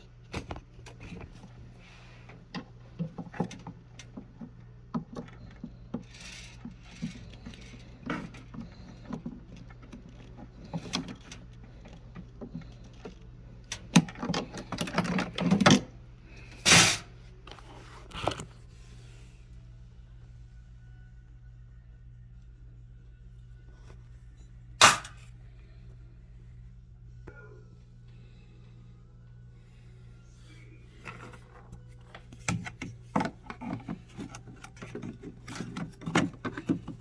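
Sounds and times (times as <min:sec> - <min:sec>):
steady low hum: 0:00.0 - 0:37.0
clicks and rattles of hand work: 0:02.2 - 0:18.6, 0:31.0 - 0:37.0.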